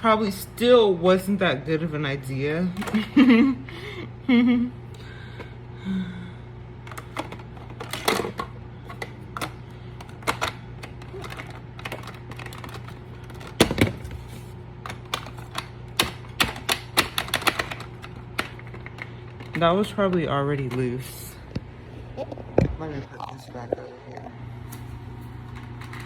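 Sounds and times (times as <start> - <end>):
steady low hum: 0.0 - 26.0
plastic vacuum parts clicking: 6.8 - 14.1, 14.8 - 20.8.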